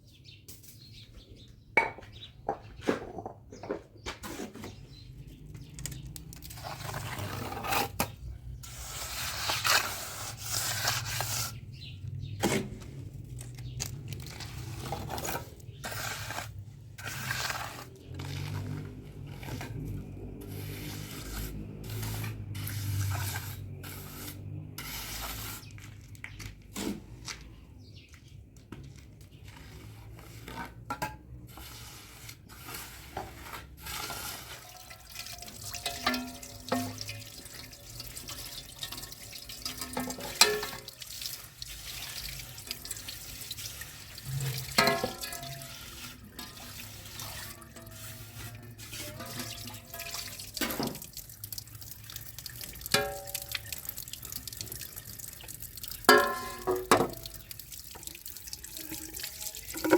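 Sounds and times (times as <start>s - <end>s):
sharp knocks and clinks: 1.8s - 3.9s
water running and splashing: 12.6s - 24.8s, 33.9s - 59.9s.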